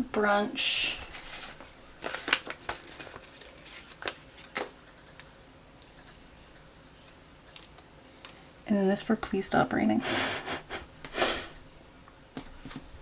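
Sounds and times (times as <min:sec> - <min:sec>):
paper rustling: 0:00.8 - 0:04.8.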